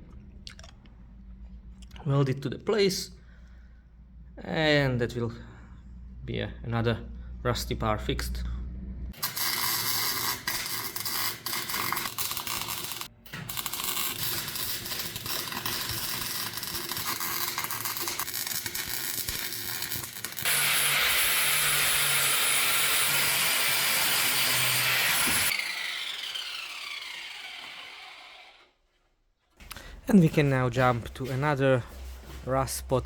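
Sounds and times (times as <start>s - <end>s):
welding arc crackling: 9.2s - 25.5s.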